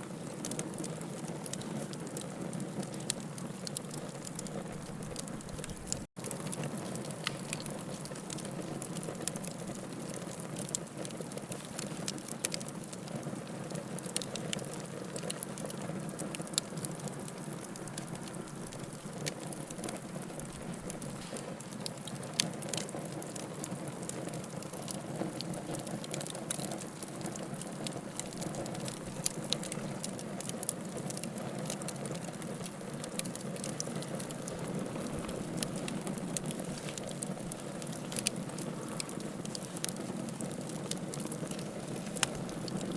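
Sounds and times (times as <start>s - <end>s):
wood fire crackling: 0.0s - 42.9s
low rush of flame: 32.4s - 42.9s.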